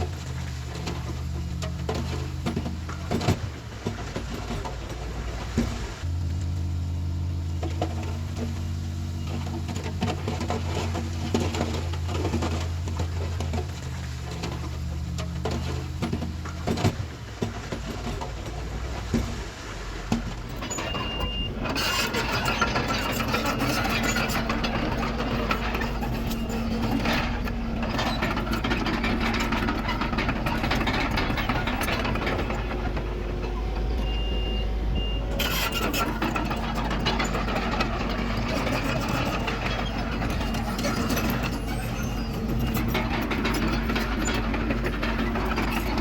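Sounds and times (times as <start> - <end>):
diesel machinery engines running: 0.0 - 46.0
backup alarm beep: 20.8 - 21.6, 34.0 - 35.2.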